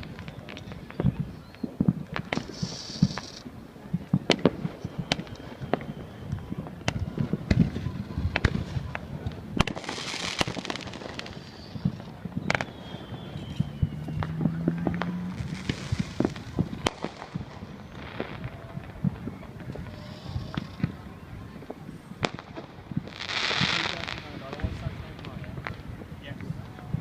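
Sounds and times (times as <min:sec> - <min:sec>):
fireworks bangs and pops: 0:00.0 - 0:27.0
high hissing: 0:02.4 - 0:03.4.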